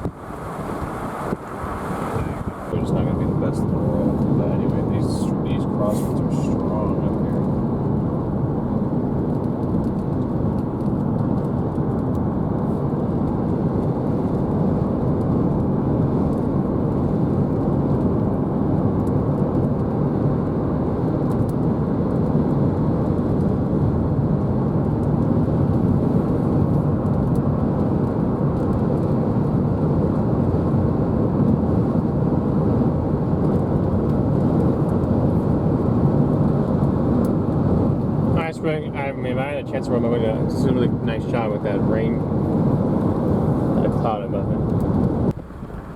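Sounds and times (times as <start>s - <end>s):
strong wind rushing: 0.0s - 45.9s.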